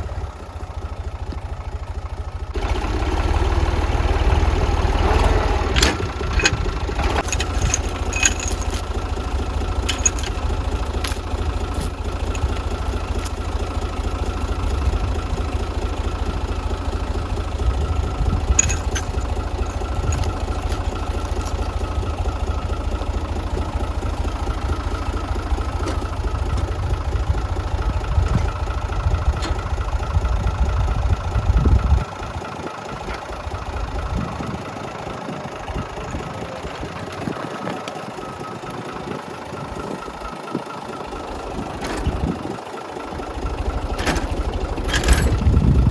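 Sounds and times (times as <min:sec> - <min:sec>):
tractor engine running: 0:00.0 - 0:45.9
sharp metallic clanks: 0:05.8 - 0:15.6, 0:18.6 - 0:22.0.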